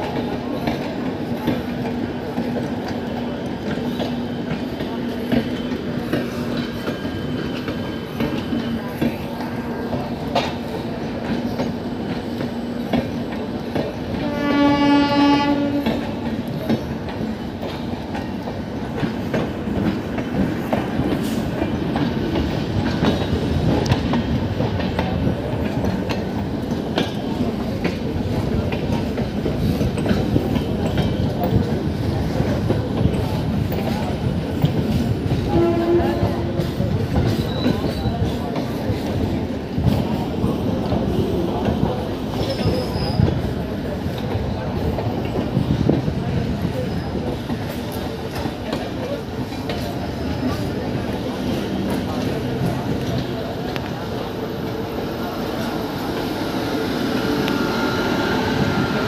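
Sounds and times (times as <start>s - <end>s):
train rolling: 0.0s - 59.0s
train horn: 14.1s - 16.2s, 35.4s - 36.6s.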